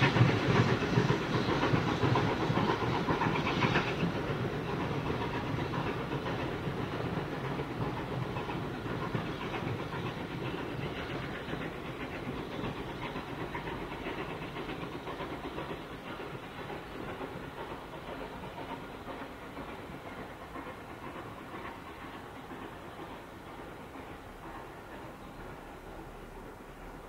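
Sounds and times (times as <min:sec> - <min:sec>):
train wheel and rail clatter: 0:00.0 - 0:27.0.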